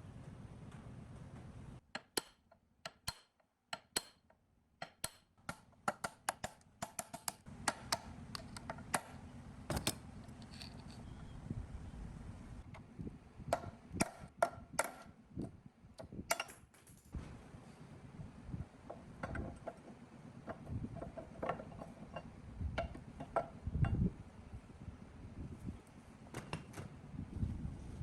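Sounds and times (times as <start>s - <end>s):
hand tools clicking and knocking: 2.0s - 9.1s, 16.0s - 17.2s.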